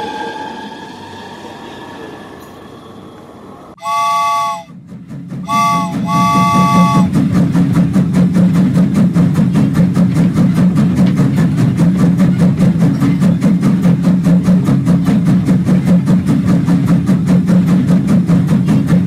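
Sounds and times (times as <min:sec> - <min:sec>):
toy train chuffing: 0:03.8 - 0:04.7, 0:05.5 - 0:07.1
toy train electronic whistle: 0:03.8 - 0:04.7, 0:05.5 - 0:07.1.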